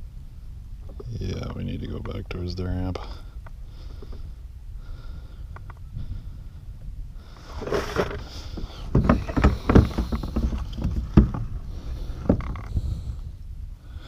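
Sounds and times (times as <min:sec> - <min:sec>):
wind rumble on microphone: 0:00.0 - 0:14.0
knocks and clunks on a kayak: 0:07.5 - 0:13.0.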